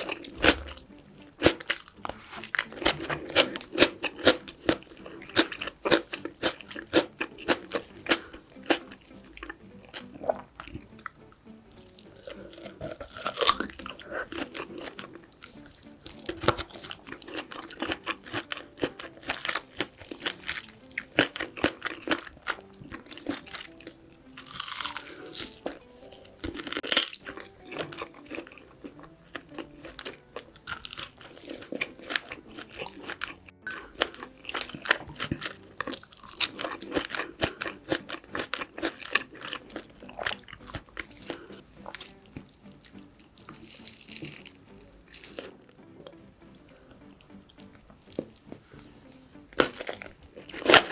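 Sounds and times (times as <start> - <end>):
chewing and crunching: 0.0 - 50.9.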